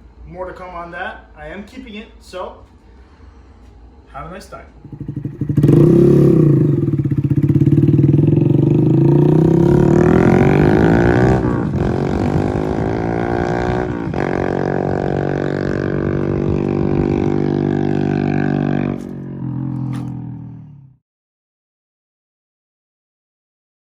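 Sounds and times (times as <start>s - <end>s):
motorcycle engine accelerating: 4.8s - 21.0s.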